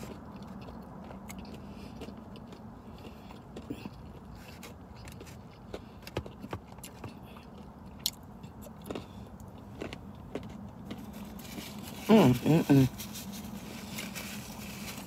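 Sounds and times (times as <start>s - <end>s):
low hum inside car: 0.0s - 15.0s
person chewing: 0.0s - 15.0s.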